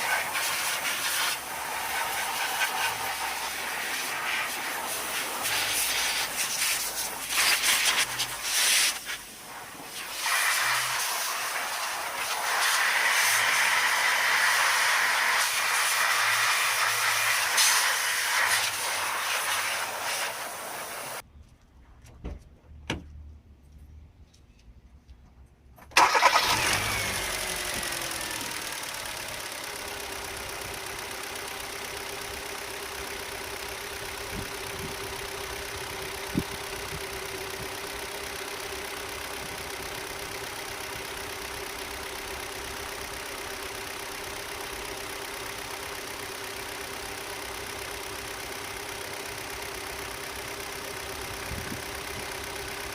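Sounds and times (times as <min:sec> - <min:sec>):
car engine starting and idling: 0:25.6 - 0:52.9.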